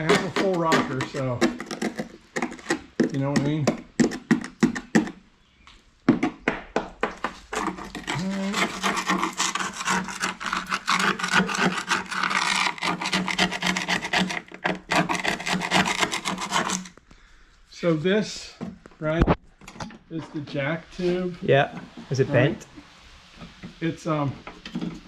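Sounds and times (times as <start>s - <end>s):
rasping scraping strokes: 0.0s - 5.1s, 7.2s - 17.0s.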